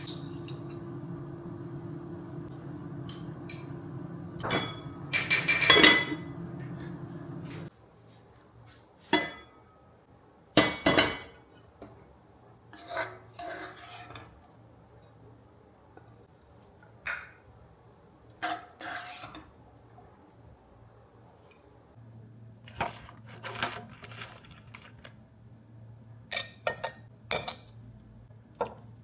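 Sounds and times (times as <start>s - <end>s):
dishes and cutlery clinking: 0.0s - 7.7s
steady low hum: 0.0s - 7.7s.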